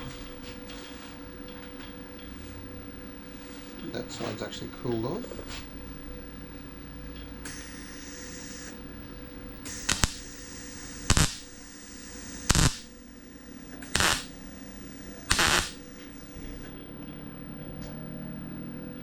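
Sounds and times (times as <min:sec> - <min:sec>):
welder crackling bursts: 0:07.4 - 0:08.8, 0:09.6 - 0:16.7
welder hiss: 0:07.4 - 0:08.8, 0:09.6 - 0:16.7.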